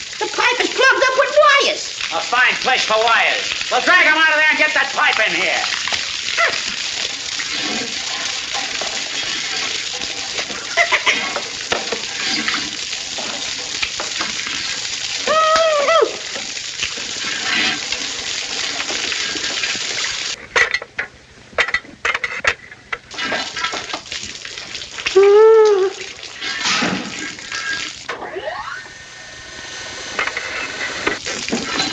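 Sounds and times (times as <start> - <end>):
water hissing from leaking plumbing: 0.0 - 20.8, 23.0 - 31.9
short vocal cry: 15.2 - 16.2, 25.1 - 26.1.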